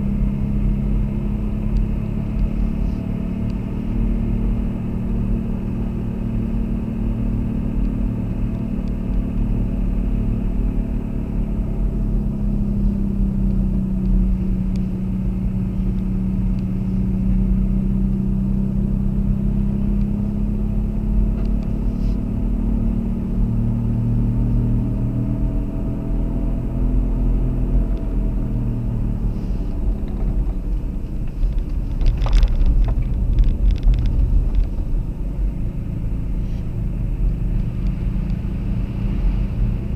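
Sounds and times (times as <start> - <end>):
car engine hum: 0.0 - 39.9
road rumble: 0.0 - 39.9.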